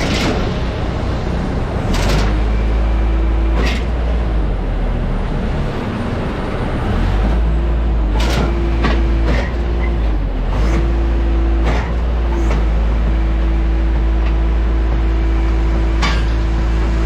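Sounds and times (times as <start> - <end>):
ground equipment rumble: 0.0 - 4.9.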